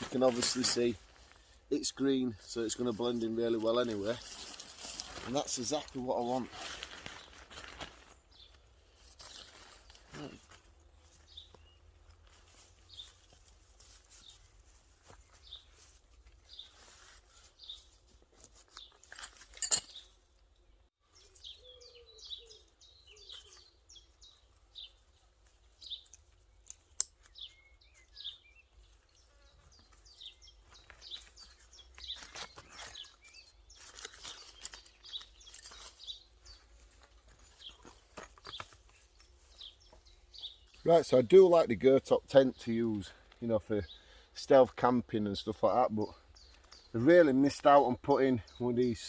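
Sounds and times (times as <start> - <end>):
birds chirping: 0.0 - 49.0
rustling: 2.9 - 20.3, 28.8 - 40.8.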